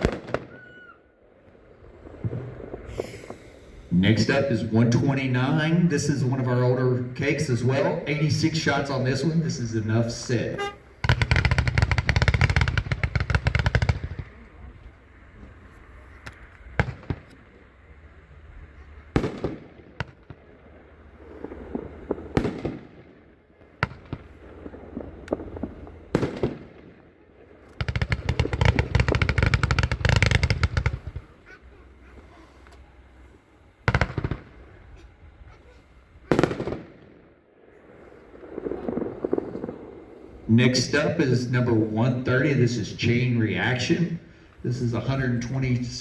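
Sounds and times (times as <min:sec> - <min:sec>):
firework cake firing: 0:00.0 - 0:01.0, 0:01.7 - 0:04.8, 0:10.2 - 0:42.1.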